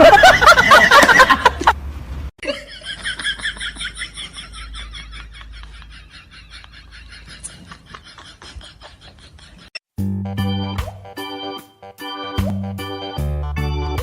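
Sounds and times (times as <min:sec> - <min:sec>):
person laughing loudly: 0:00.0 - 0:01.8, 0:02.4 - 0:09.8.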